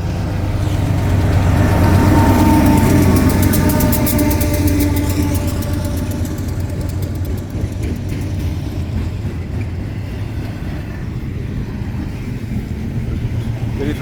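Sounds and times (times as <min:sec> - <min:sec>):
steel wheels rumbling on rail: 0:00.0 - 0:14.0
rapid regular ticking: 0:01.1 - 0:09.2.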